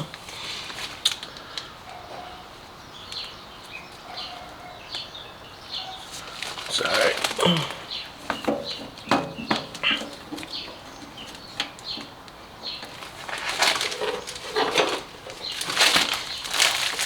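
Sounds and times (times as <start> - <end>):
light clicks and rustling: 6.0 - 17.0
scraping: 12.7 - 17.0.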